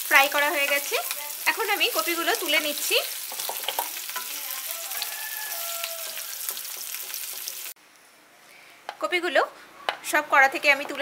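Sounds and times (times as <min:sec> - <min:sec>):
vegetables sizzling in oil: 0:00.0 - 0:07.8.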